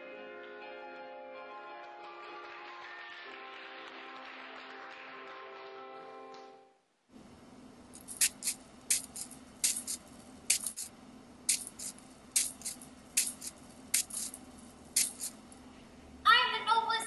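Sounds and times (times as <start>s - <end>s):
steady low hum: 7.1s - 16.3s
rhythmic swishing: 8.0s - 10.9s, 11.5s - 15.4s.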